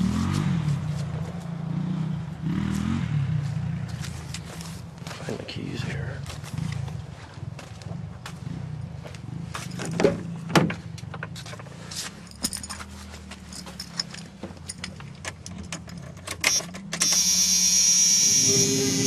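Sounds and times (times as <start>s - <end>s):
handling clicks and clinks: 9.6s - 17.2s.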